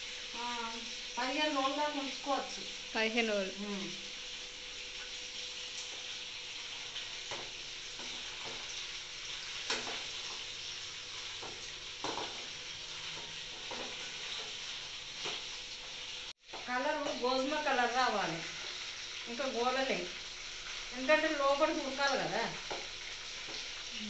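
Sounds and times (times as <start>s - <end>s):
food deep-frying in oil: 0.0s - 24.0s.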